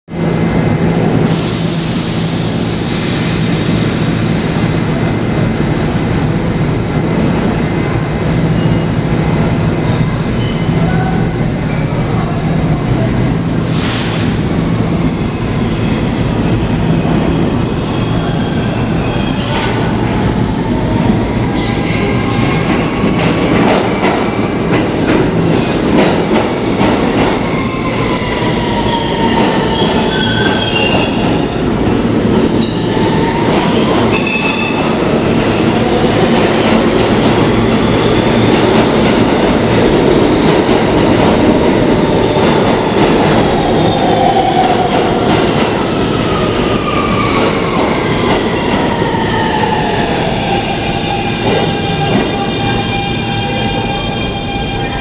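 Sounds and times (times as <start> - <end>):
subway car rumble: 0.1 - 55.0.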